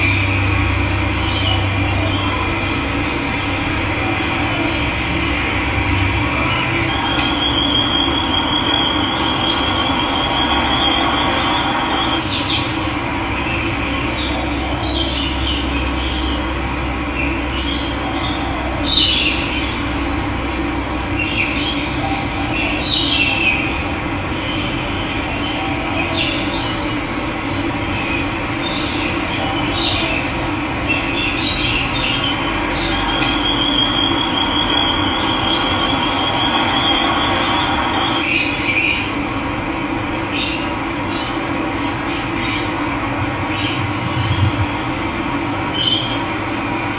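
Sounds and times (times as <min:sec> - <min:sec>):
birds chirping: 0:45.6 - 0:46.9
high bird trill: 0:45.7 - 0:46.9.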